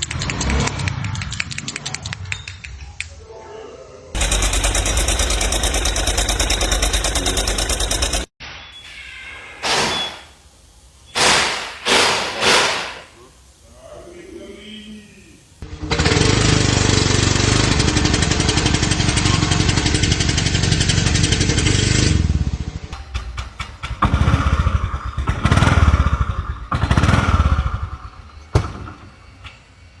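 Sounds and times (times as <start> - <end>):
motorcycle engine revving: 4.2 - 8.3, 15.6 - 22.9, 23.9 - 28.2.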